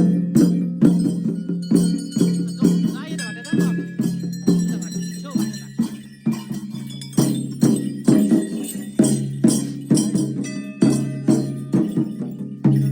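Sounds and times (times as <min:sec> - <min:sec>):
bells jingling: 0:00.0 - 0:12.9
drum beaten in steady rhythm: 0:00.0 - 0:12.9.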